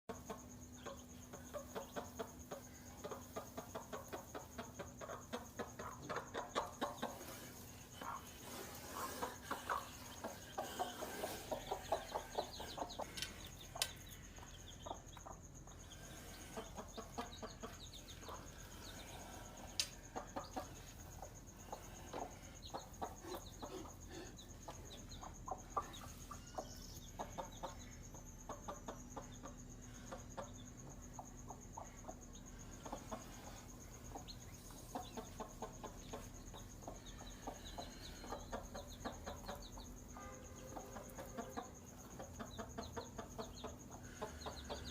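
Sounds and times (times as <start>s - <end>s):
chicks peeping: 0.1s - 44.9s
hen clucking: 0.1s - 44.9s.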